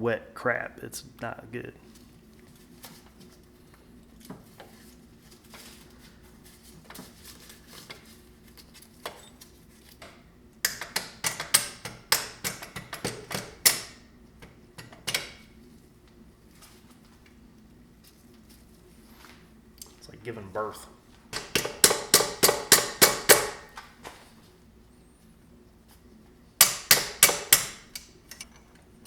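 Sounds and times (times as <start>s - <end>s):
faint steady hum: 0.0s - 29.0s
metal parts clinking and knocking: 27.0s - 28.8s.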